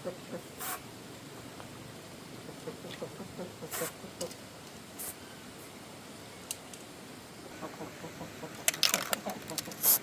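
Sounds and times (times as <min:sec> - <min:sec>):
sharp clicks and clatters: 0:08.6 - 0:09.9.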